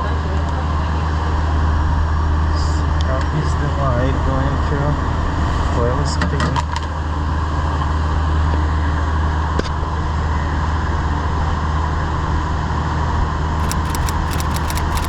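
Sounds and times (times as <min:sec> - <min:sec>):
light clicks: 0:13.6 - 0:15.0.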